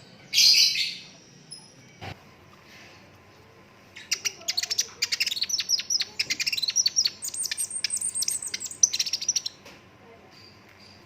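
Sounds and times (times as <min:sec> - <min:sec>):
sunbird singing rattling song: 0:03.9 - 0:09.6.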